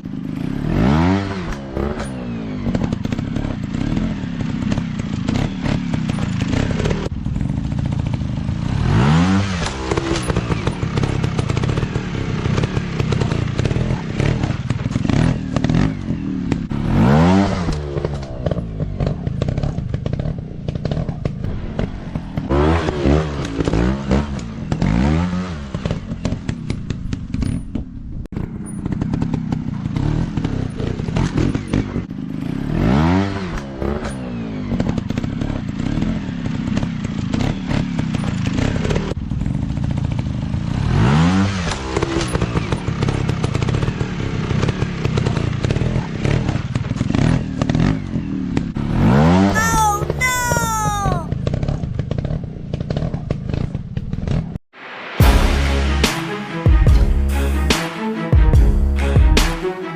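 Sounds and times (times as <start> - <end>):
dirt bike engines revving: 0.0 - 26.6, 40.0 - 52.2.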